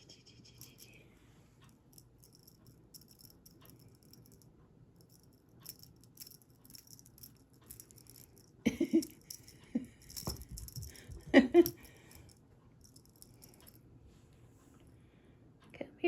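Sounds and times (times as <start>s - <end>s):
cat toy rattling and jingling: 2.0s - 4.4s, 5.0s - 13.8s.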